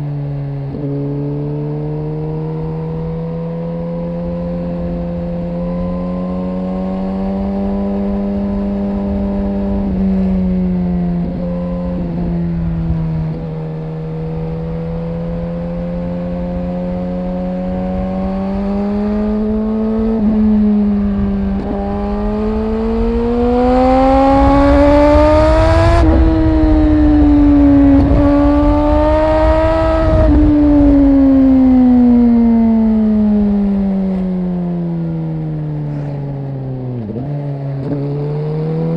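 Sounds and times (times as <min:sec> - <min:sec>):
motorcycle engine revving: 0:00.0 - 0:38.9
wind rumble on microphone: 0:02.4 - 0:34.5.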